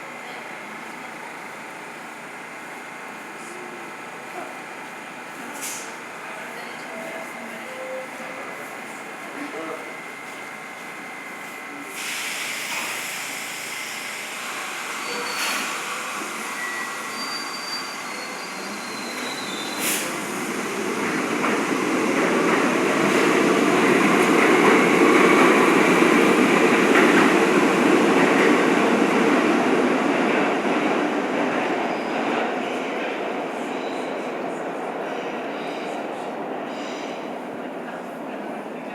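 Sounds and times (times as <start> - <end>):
subway train rumbling: 0.0 - 38.9
high wheel squeals: 15.0 - 15.6, 16.5 - 19.8.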